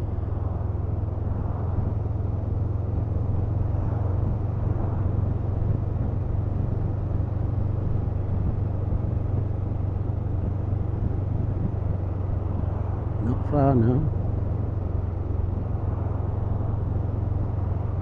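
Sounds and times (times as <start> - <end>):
road noise rushing: 0.0 - 9.8
motorcycle engine drone: 0.0 - 18.0.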